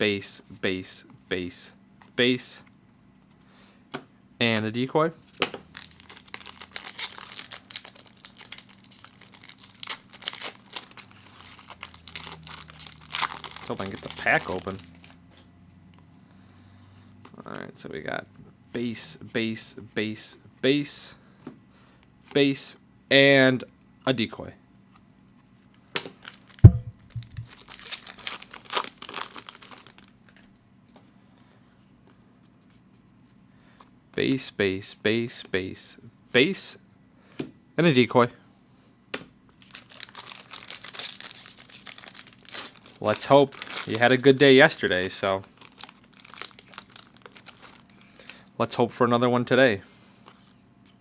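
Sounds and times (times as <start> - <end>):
plastic wrapper crinkling and tearing: 5.7 - 15.2, 25.6 - 30.5, 39.5 - 48.5
thump: 26.7 - 27.5.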